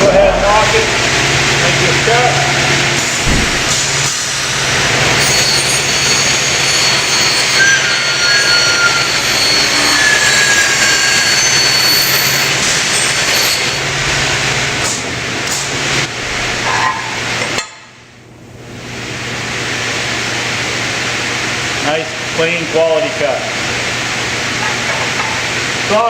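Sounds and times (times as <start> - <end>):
circular saw motor hum: 0.1 - 14.7.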